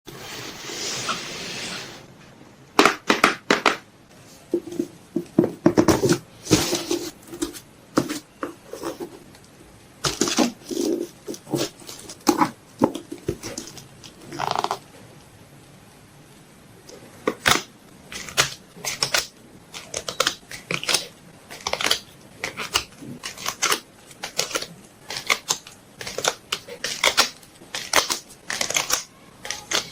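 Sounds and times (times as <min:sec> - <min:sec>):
packaging clicking and crinkling: 0:17.4 - 0:29.9.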